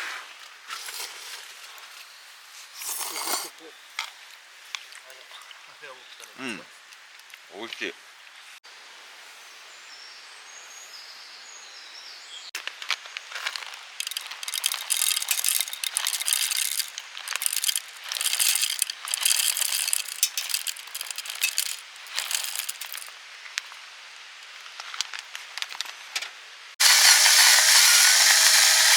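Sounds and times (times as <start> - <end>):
hand coffee mill grinding: 13.4 - 23.1, 26.8 - 28.9.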